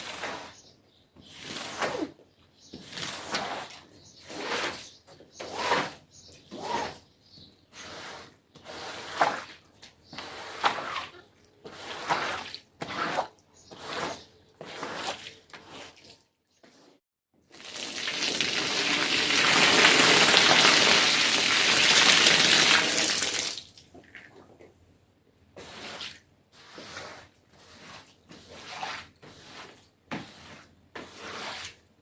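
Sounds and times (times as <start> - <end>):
rushing water: 17.6 - 23.6.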